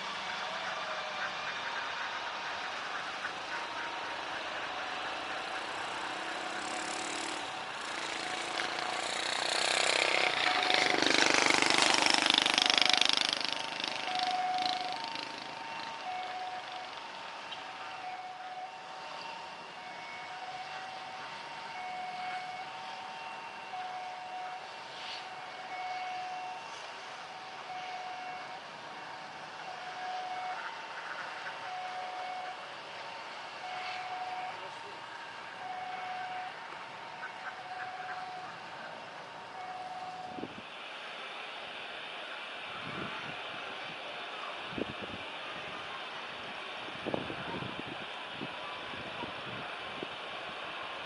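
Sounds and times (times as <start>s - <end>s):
vehicle passing: 0.0s - 16.8s.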